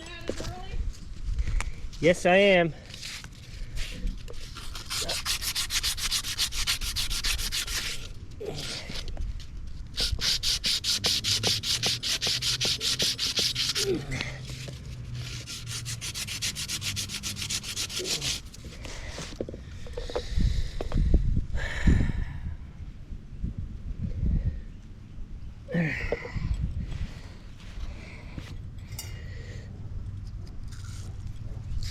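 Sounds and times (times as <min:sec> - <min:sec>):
abrasive rubbing on a pipe: 0:03.8 - 0:08.1, 0:09.9 - 0:19.3.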